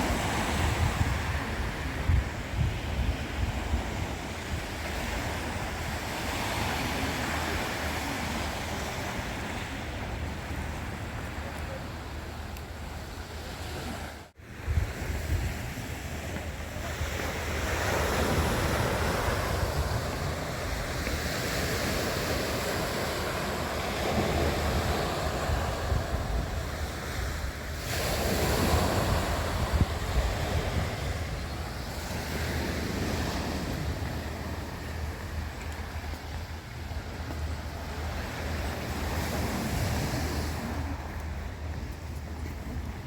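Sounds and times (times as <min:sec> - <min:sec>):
sea waves washing in: 0:00.0 - 0:43.0
wind buffeting microphone: 0:00.0 - 0:43.0.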